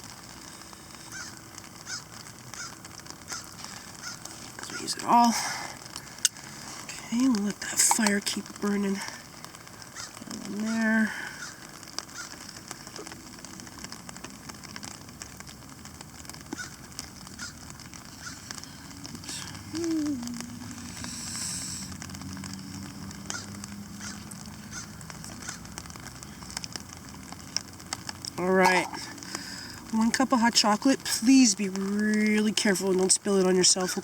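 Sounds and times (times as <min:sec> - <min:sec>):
campfire crackling and popping: 0:00.0 - 0:34.0
short low falling call: 0:19.2 - 0:21.8.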